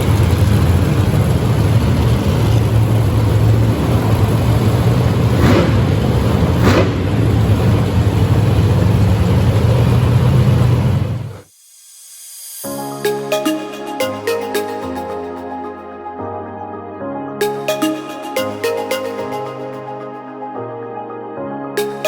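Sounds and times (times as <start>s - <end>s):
monster truck engine revving: 0.0s - 11.4s.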